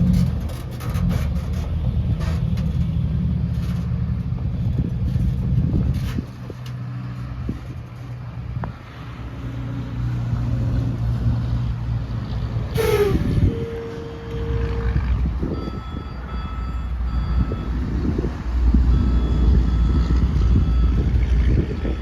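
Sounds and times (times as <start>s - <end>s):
heavy diesel engine running: 10.0s - 22.0s.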